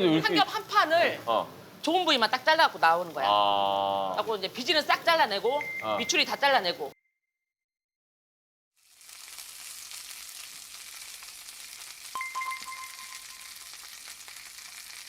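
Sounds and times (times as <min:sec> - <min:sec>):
meat sizzling on a grill: 0:00.0 - 0:06.6, 0:08.8 - 0:15.0
faint ringing tone: 0:12.2 - 0:13.7.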